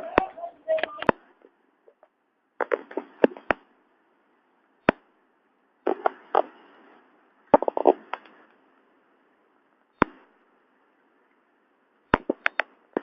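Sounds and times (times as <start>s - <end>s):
faint hiss: 0.0s - 13.0s
sharp clicks and pops: 0.1s - 3.7s, 4.8s - 5.2s, 5.8s - 8.6s, 9.9s - 10.4s, 12.1s - 13.0s.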